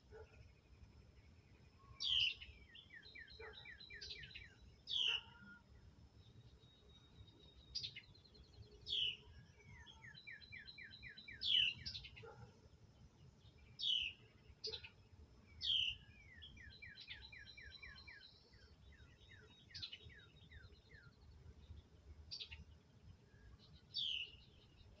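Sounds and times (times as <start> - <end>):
wren chirps: 1.8 - 5.6, 6.7 - 12.5, 13.5 - 21.3.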